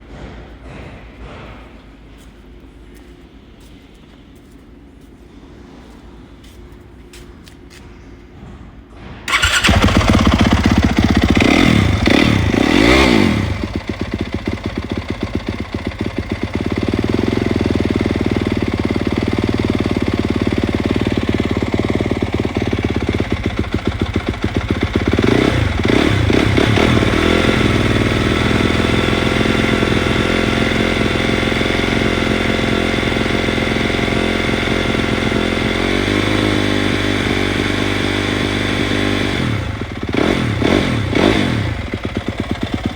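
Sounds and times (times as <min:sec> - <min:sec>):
motorcycle engine starting and idling: 0:09.2 - 0:42.9.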